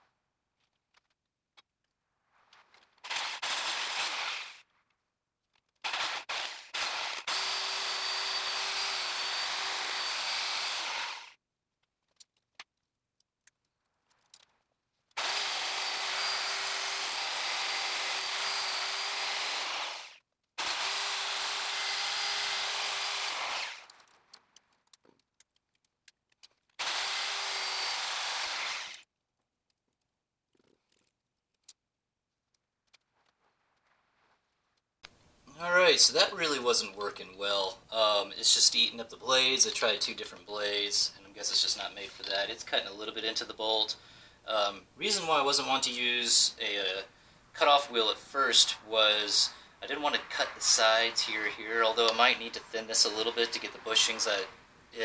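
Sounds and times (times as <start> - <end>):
reciprocating saw cutting steel bolt: 3.1 - 4.6, 5.8 - 11.4, 15.2 - 23.9, 26.8 - 29.0.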